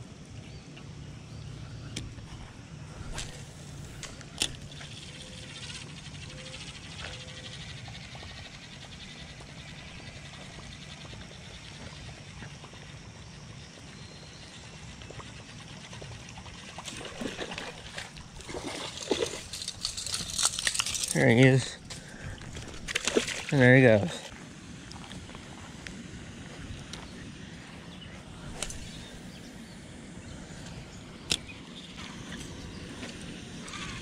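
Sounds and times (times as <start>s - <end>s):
low outdoor hum: 0.0s - 34.0s
spinning reel whirring: 4.0s - 8.8s.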